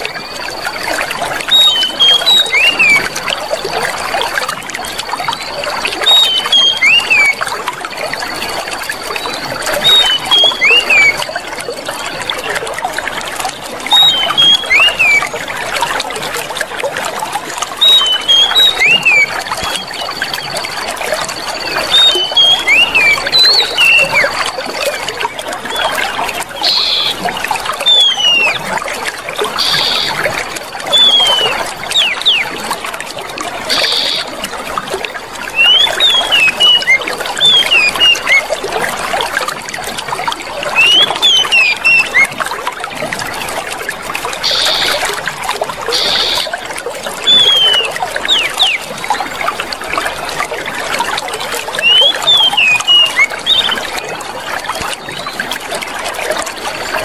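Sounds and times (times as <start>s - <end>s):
water trickling and splashing: 0.0s - 57.0s
small birds chirping: 1.4s - 3.2s, 4.8s - 7.4s, 8.3s - 11.4s, 13.9s - 15.3s, 17.8s - 32.8s, 33.7s - 34.4s, 35.5s - 38.6s, 40.7s - 42.3s, 44.4s - 45.1s, 45.9s - 46.5s, 47.2s - 49.3s, 51.7s - 55.5s.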